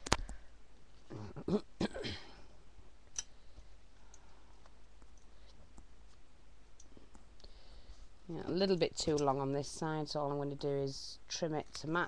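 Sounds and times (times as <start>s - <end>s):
person clearing throat: 1.1s - 2.4s.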